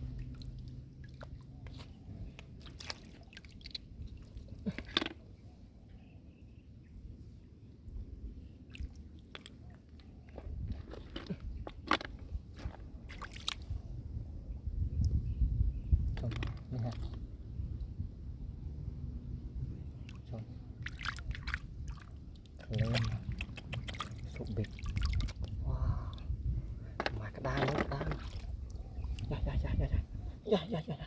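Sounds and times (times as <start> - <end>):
hands rummaging through wet mud: 0.5 - 5.3, 9.0 - 13.8, 16.1 - 17.2.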